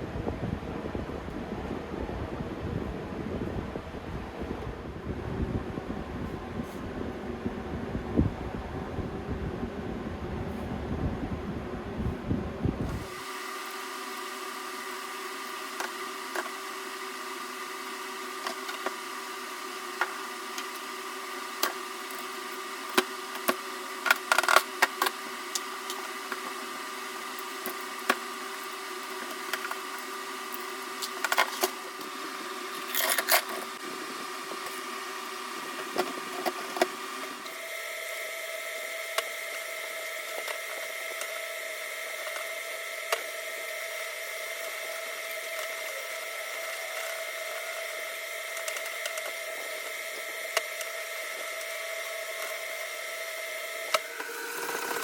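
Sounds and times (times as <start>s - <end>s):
small electric motor humming: 12.0s - 55.0s.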